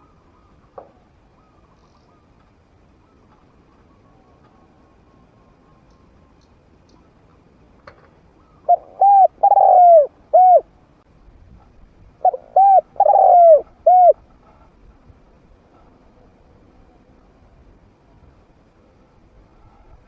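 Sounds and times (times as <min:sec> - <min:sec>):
dove cooing: 0:08.4 - 0:10.7, 0:12.2 - 0:14.2.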